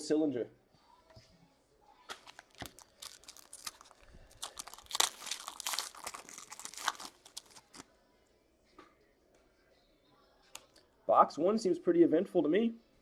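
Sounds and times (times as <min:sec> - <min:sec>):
foil wrapper tearing and crinkling: 0:02.2 - 0:07.8.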